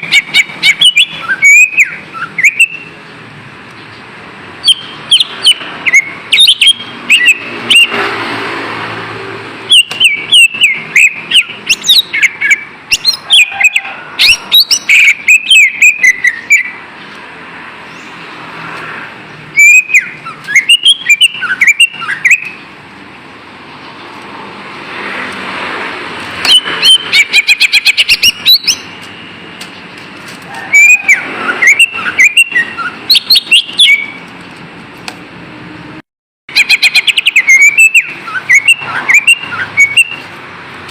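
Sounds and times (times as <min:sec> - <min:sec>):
bird singing whistled notes and trills: 0:00.0 - 0:08.0, 0:09.7 - 0:17.1, 0:19.3 - 0:22.8, 0:26.4 - 0:29.0, 0:29.7 - 0:34.3, 0:36.5 - 0:40.4.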